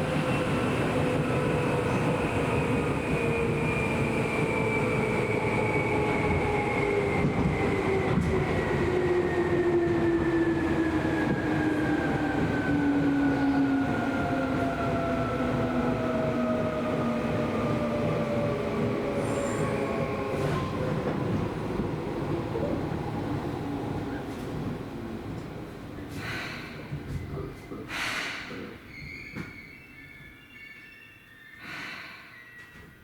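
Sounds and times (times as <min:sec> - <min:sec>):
high squeak: 0:28.9 - 0:31.6.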